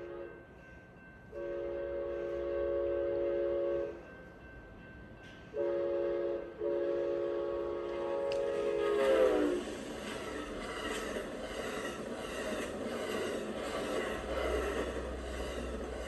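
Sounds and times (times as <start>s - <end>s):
locomotive air horn blasts: 0.0s - 0.3s, 1.4s - 4.0s, 5.6s - 9.6s.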